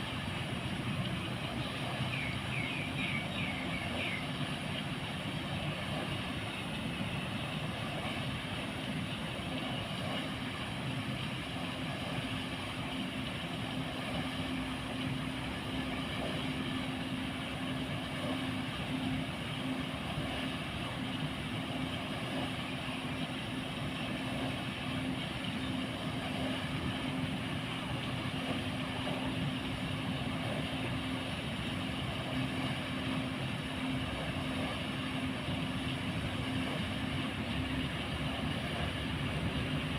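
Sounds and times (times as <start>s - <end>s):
paddle-wheel aerator running: 0.0s - 39.9s.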